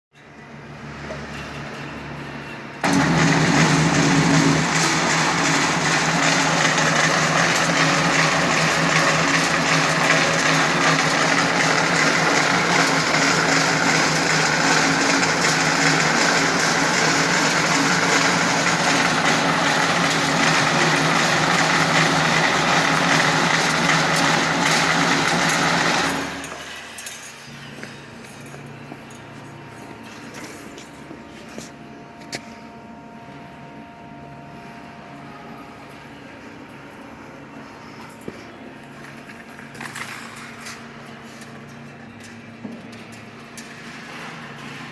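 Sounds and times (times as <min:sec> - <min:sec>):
spring coiling machine whirring: 0:02.8 - 0:29.2.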